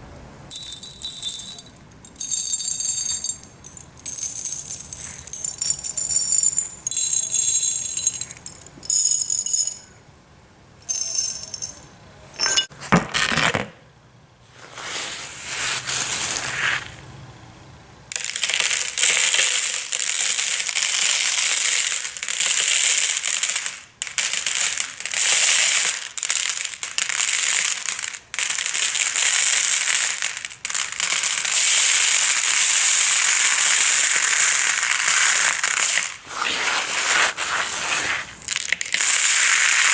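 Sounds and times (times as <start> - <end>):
gravel clinking and jingling: 0.2 - 10.0, 10.8 - 12.7
pebbles rattling: 0.5 - 9.9, 10.8 - 11.8.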